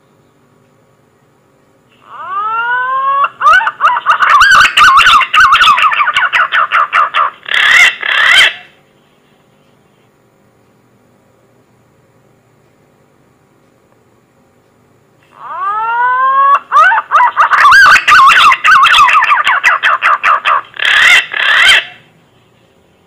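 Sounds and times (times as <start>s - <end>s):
pigeon lure call whistling: 2.0s - 6.8s, 15.4s - 22.0s.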